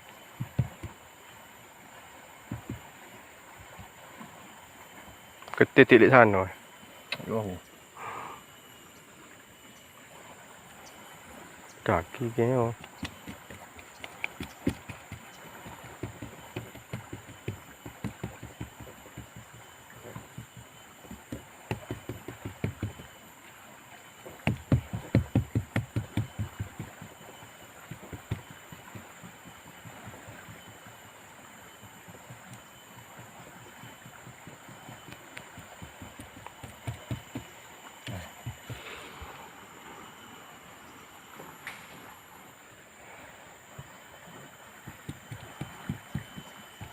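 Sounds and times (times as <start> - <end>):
short knocks or taps: 0.4 - 1.0, 2.5 - 2.9, 12.8 - 23.1, 24.4 - 27.1, 34.0 - 38.8, 44.8 - 46.9.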